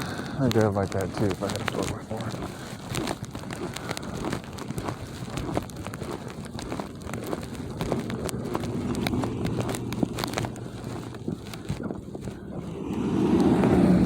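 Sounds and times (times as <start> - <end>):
footsteps crunching in snow: 0.0 - 14.0
vehicle engine running: 6.5 - 14.0.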